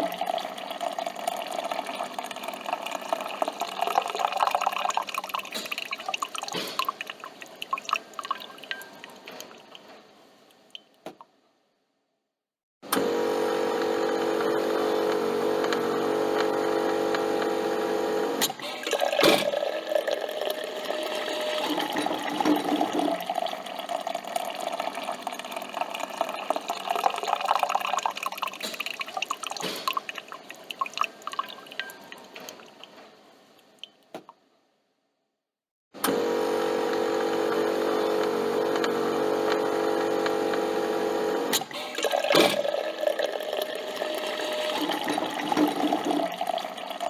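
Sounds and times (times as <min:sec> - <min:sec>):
coffee dripping into cup: 0:00.0 - 0:09.9, 0:18.7 - 0:32.8
coffee machine buzzing hum: 0:12.9 - 0:28.0, 0:36.0 - 0:47.0.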